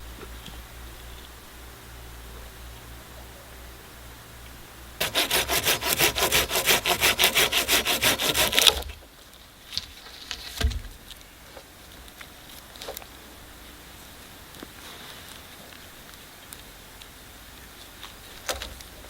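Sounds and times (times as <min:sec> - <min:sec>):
hand saw cutting wood: 0:05.0 - 0:09.0
dull thump: 0:10.5 - 0:11.0.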